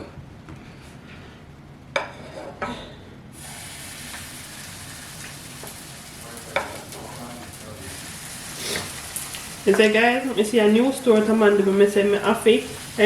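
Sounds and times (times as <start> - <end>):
hot oil sizzling: 3.4 - 13.0.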